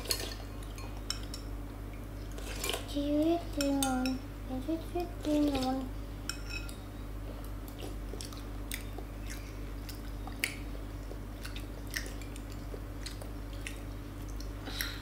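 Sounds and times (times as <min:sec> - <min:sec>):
person chewing food: 0:06.6 - 0:15.0.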